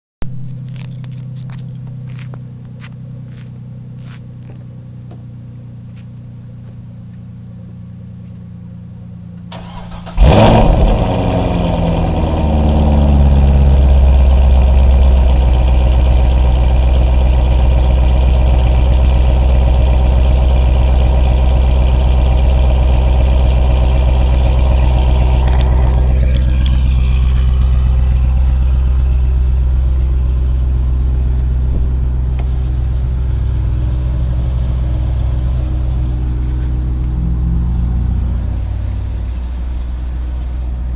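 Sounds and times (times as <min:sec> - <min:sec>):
low hum: 0:00.2 - 0:40.9
car engine starting and idling: 0:00.5 - 0:40.9.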